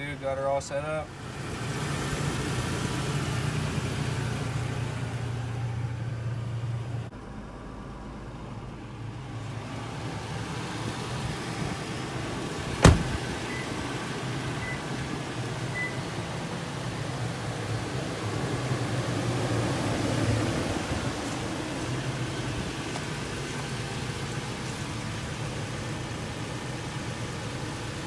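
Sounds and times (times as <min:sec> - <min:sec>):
pickup engine idling: 0:09.0 - 0:28.0.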